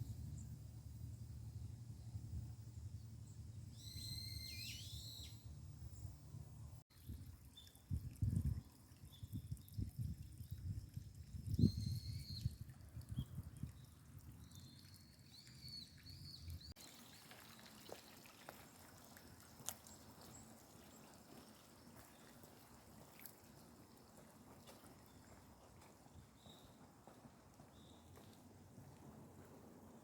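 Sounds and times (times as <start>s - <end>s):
bird chirps: 2.9s - 6.1s, 14.4s - 17.3s
faint outdoor ambience: 12.8s - 30.0s.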